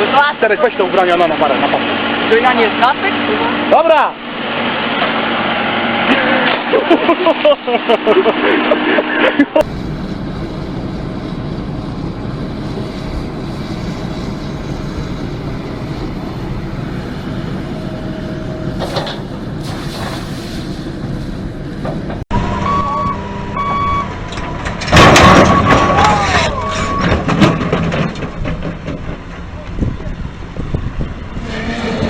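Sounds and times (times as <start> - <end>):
motor vehicle rumbling: 0.0 - 32.0
loud burst of noise: 1.5 - 29.2
short electronic beeps: 22.4 - 24.2, 26.6 - 27.1.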